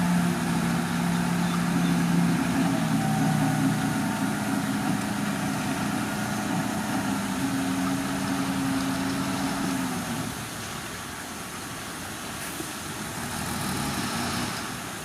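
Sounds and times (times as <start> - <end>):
heavy diesel engine running: 0.0 - 10.5.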